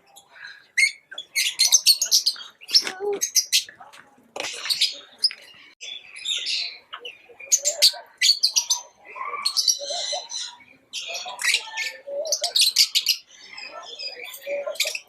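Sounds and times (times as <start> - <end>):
lovebirds chirping: 0.0 - 15.0.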